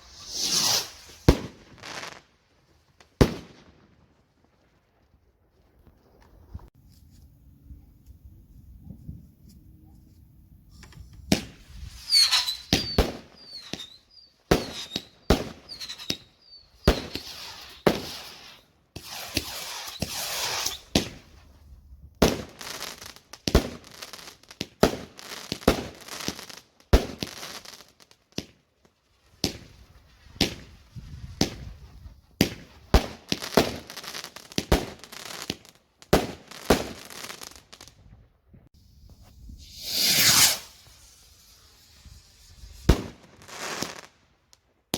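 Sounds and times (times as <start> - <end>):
fireworks whistles: 0.0 - 2.2, 10.7 - 21.5, 38.9 - 44.2
fireworks bangs and cracks: 0.0 - 2.3, 2.9 - 4.6, 11.2 - 21.4, 22.2 - 28.6, 29.4 - 37.9, 39.2 - 44.2
rushing hiss: 39.6 - 42.9.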